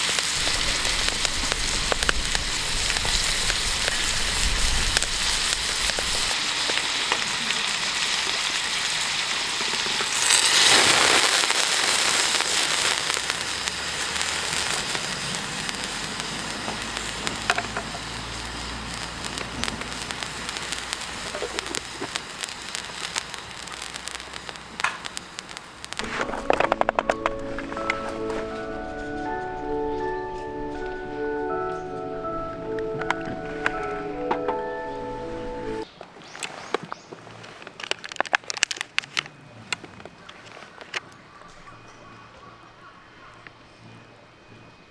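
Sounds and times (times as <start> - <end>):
food sizzling in a pan: 0.0 - 35.8
campfire crackling: 0.0 - 35.9.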